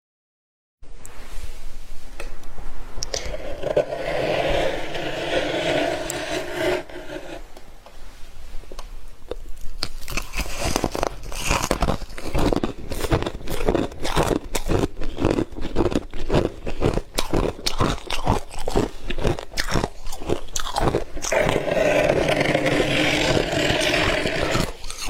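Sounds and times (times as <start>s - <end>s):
frost being scraped: 3.2s - 7.5s, 21.2s - 25.0s
crunching and chewing: 9.3s - 25.0s.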